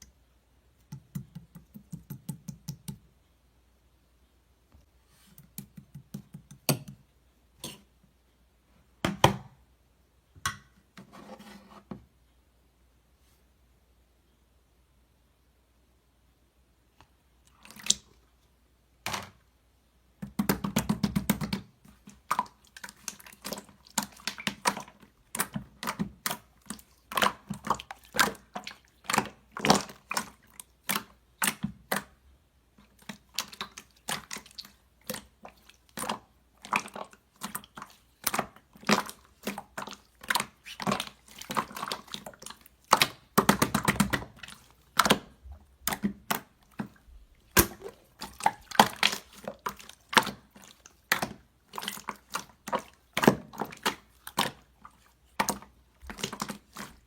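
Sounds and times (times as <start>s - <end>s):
slime squished by hand: 32.9s - 57.0s.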